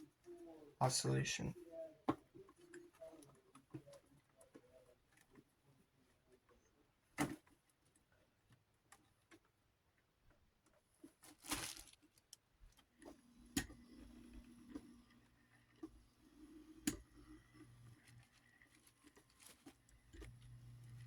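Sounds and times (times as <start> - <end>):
scraping rustle: 11.1 - 12.2, 18.0 - 21.0
faint low hum: 13.1 - 21.0.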